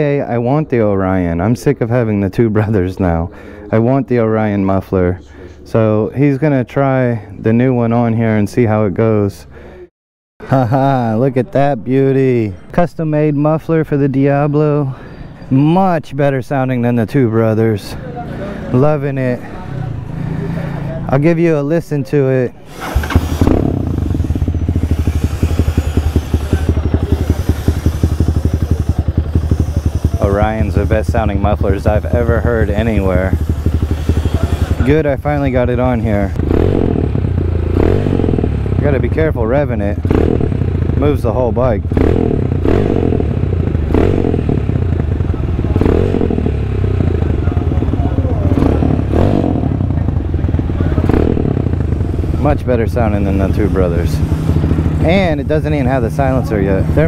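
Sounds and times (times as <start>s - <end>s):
motorcycle engine idling: 22.6s - 57.0s.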